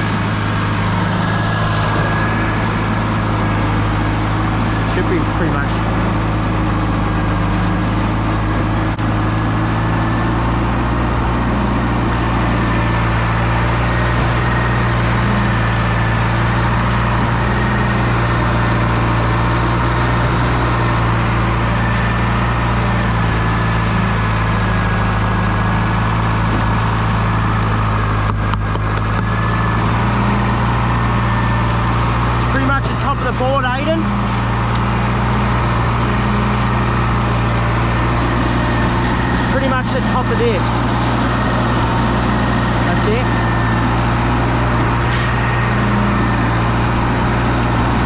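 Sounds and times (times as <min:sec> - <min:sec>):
large engine idling: 0:00.0 - 0:48.0
high-pitched electronic beeps: 0:06.2 - 0:12.2.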